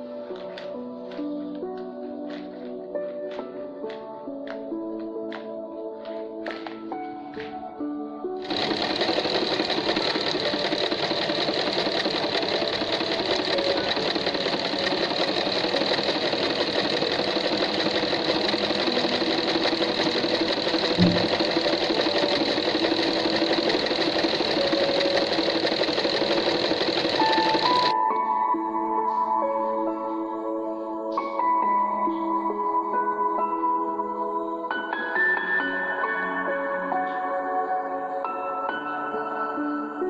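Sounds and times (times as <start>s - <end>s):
sewing machine chattering: 8.4s - 28.0s.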